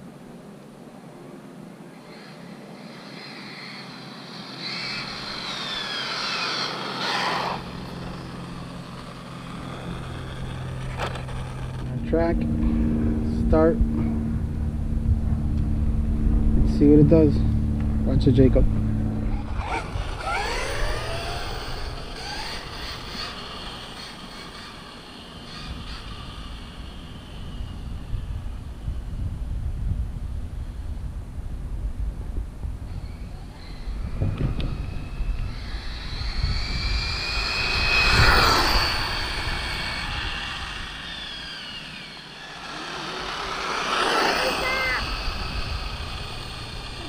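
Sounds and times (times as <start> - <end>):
rc car electric motor whining: 1.9 - 12.0, 19.3 - 29.5, 32.9 - 47.0.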